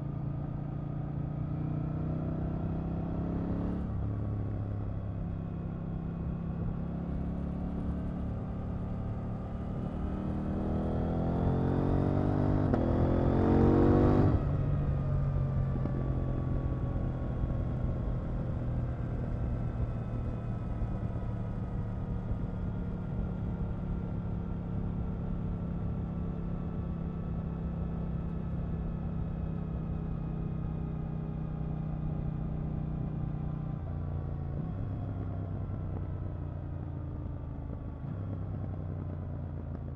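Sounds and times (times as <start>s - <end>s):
motorcycle engine revving: 7.1s - 16.0s.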